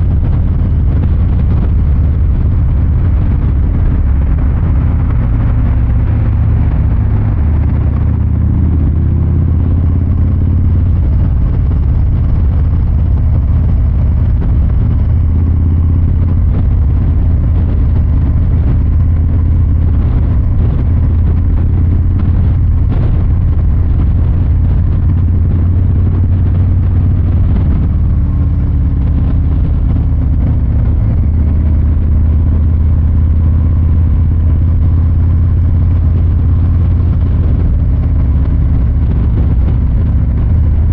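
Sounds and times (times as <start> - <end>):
motorcycle exhaust rumbling: 0.0 - 40.9.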